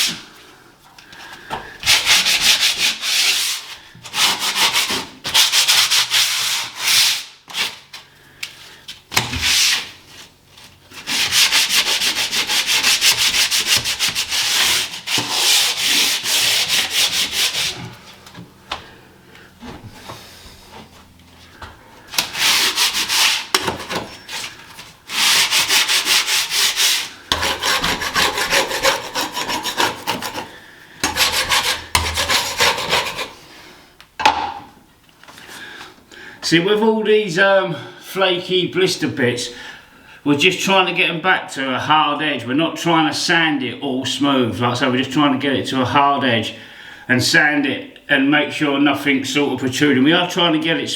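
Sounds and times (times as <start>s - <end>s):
sandpaper scratching on ceiling: 1.8s - 7.9s, 9.3s - 10.3s, 10.9s - 18.0s, 22.1s - 33.5s.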